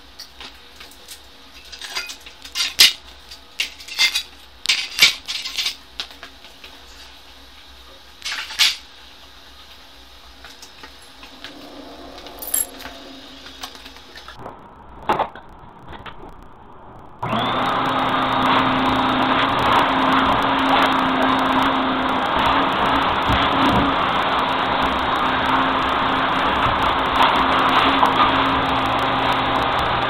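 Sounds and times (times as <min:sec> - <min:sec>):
tools clattering: 0:12.4 - 0:12.9.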